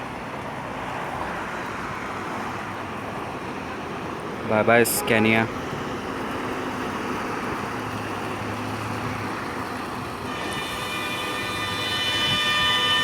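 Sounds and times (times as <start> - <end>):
traffic and engine noise: 0.0 - 13.0
long multi-tone horn: 10.3 - 13.0.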